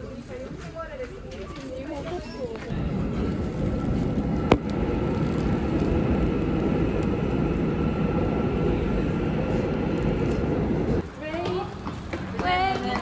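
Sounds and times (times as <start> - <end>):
vehicle engine rumbling: 2.4 - 12.4
faint high whine: 2.7 - 11.0.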